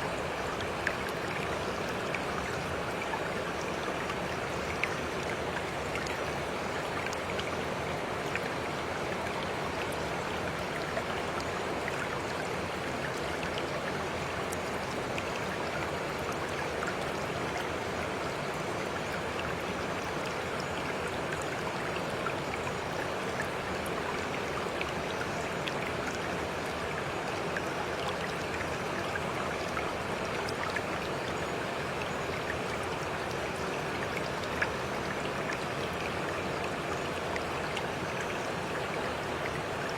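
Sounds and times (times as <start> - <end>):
stream water flowing: 0.0 - 39.9
water drips and splashes: 0.1 - 39.9.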